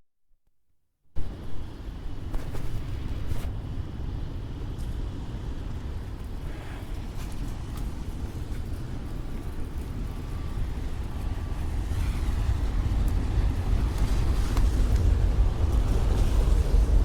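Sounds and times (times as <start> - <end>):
street traffic rumble: 1.2 - 17.0.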